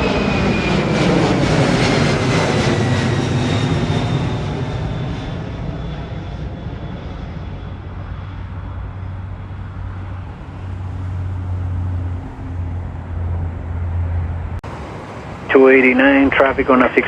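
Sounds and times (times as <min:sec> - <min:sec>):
jet engine high whine: 0:00.0 - 0:17.0
jet engine low rumble: 0:00.0 - 0:17.0.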